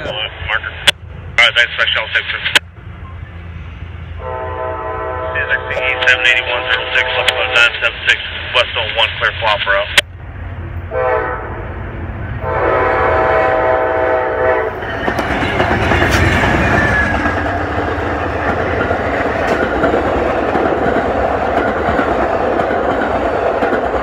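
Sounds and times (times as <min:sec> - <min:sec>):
locomotive horn: 0:04.1 - 0:07.9, 0:10.9 - 0:11.6, 0:12.4 - 0:14.8
train wheels clattering on rails: 0:14.7 - 0:24.0.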